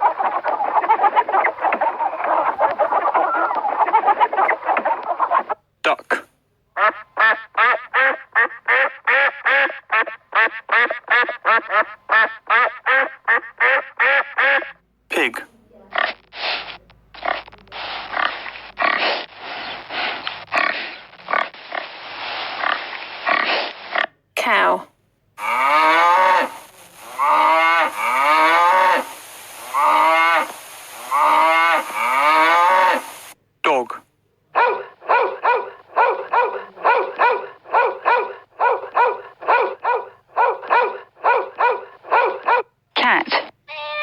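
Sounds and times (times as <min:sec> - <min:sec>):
pig grunting and oinking: 0:18.1 - 0:19.2, 0:25.4 - 0:26.5
dog barking: 0:34.5 - 0:42.7.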